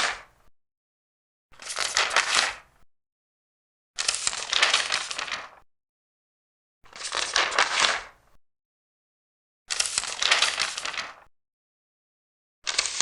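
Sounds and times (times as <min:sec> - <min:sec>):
paper pages turning: 0:01.6 - 0:02.6, 0:04.0 - 0:05.6, 0:06.9 - 0:08.2, 0:09.7 - 0:11.3, 0:12.7 - 0:13.0.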